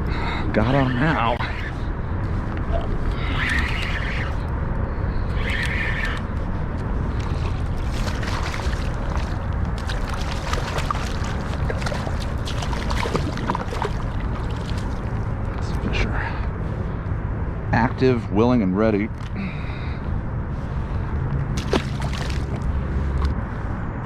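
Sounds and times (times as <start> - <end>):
wind buffeting microphone: 0.0 - 24.0
water slapping against kayak hull: 7.1 - 15.3, 21.6 - 22.6
light splashes and clicks: 7.1 - 15.8, 21.6 - 22.6.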